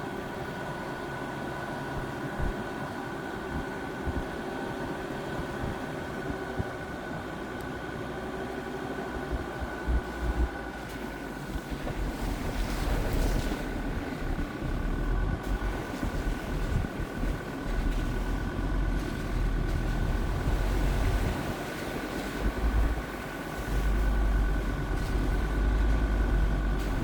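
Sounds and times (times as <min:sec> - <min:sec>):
diesel engine running: 0:00.0 - 0:27.0
wind buffeting microphone: 0:09.0 - 0:27.0
steady high whine: 0:09.1 - 0:27.0.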